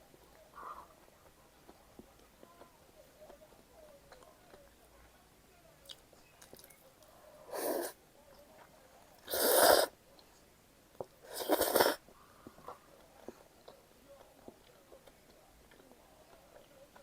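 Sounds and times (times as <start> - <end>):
slurping noodles: 9.3 - 9.9, 11.3 - 12.0.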